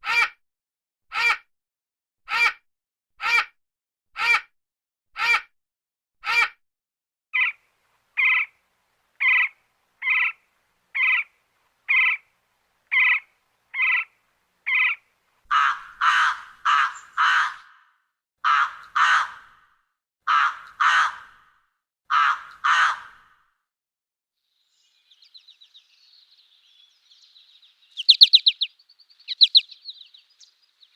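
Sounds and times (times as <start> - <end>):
bird giving harsh calls: 14.7 - 19.4, 27.9 - 30.5.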